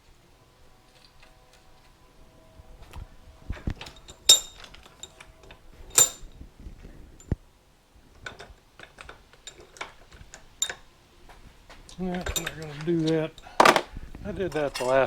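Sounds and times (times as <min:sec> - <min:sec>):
small metal hardware clinking: 0:03.6 - 0:07.4, 0:08.1 - 0:15.0.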